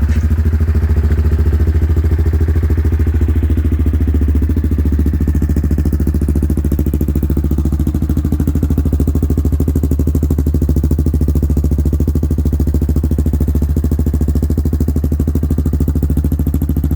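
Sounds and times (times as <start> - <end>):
atv engine idling: 0.0 - 16.9.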